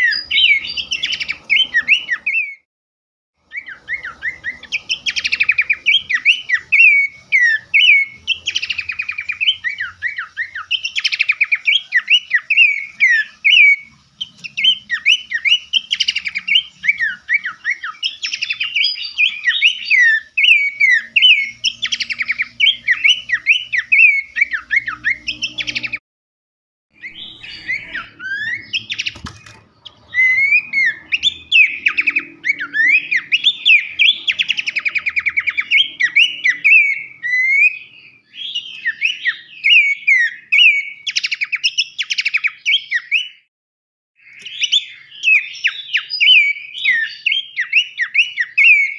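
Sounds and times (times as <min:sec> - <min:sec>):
songbird singing chirps and trills: 0:00.0 - 0:02.6, 0:03.4 - 0:26.0, 0:27.0 - 0:43.5, 0:44.2 - 0:48.9.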